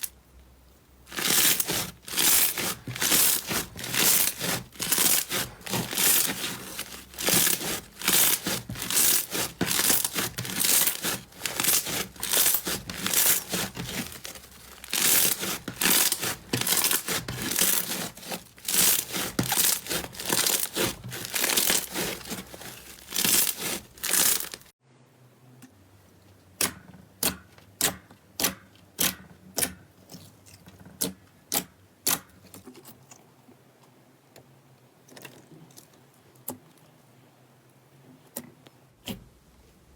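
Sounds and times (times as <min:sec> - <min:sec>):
slime crackling and popping: 0:01.1 - 0:24.7.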